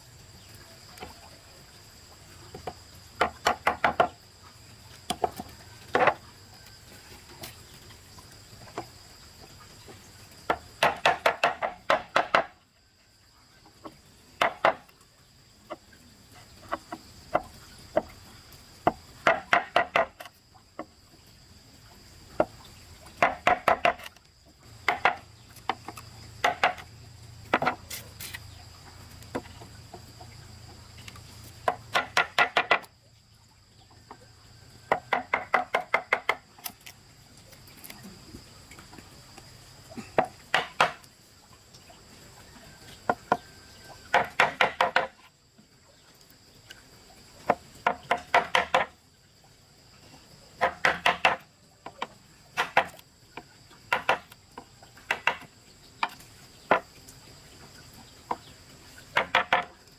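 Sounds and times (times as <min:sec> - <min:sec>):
chopping strikes on wood: 0:03.2 - 0:04.1, 0:10.5 - 0:12.5, 0:14.4 - 0:14.8, 0:18.9 - 0:20.3, 0:23.2 - 0:24.1, 0:24.8 - 0:26.9, 0:31.7 - 0:32.9, 0:34.9 - 0:36.4, 0:40.2 - 0:41.0, 0:44.1 - 0:45.2, 0:47.5 - 0:48.9, 0:50.6 - 0:51.4, 0:52.6 - 0:53.0, 0:53.9 - 0:54.4, 0:55.1 - 0:55.5, 0:59.1 - 0:59.7.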